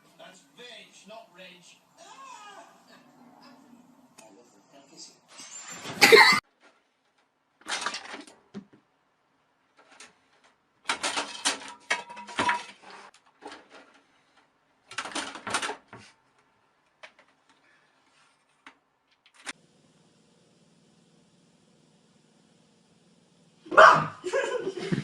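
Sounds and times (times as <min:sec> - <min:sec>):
rapid clattering and rattling: 0:07.6 - 0:08.7, 0:09.8 - 0:16.1.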